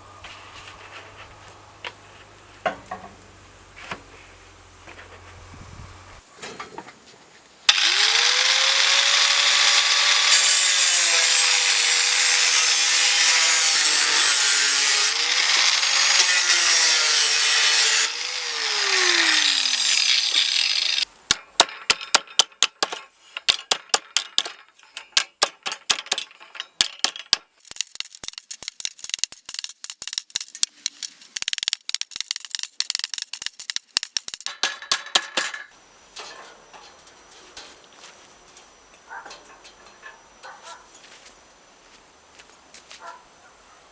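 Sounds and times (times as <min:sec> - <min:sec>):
power tool whining: 0:07.7 - 0:21.0
clicking and scraping from hand work: 0:27.6 - 0:34.5.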